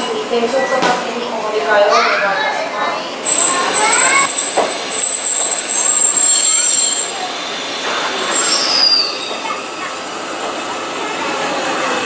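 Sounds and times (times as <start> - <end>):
train running rumble: 3.1 - 12.0
train wheels squealing: 3.3 - 9.8.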